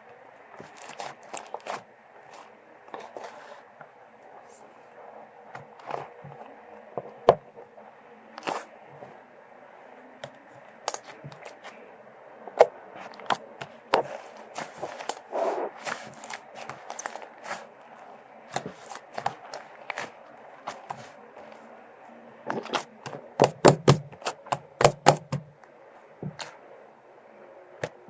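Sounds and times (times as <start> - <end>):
slime squishing by hand: 0.6 - 3.7, 8.4 - 9.2, 10.2 - 11.8, 12.6 - 21.7.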